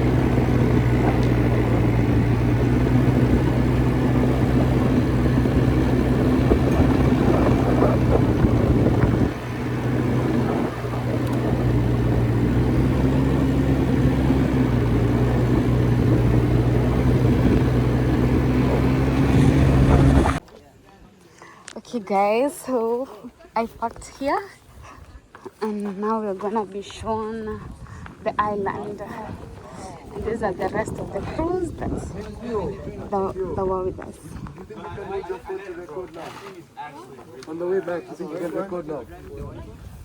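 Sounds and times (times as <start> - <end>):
quad bike engine running: 0.0 - 20.4.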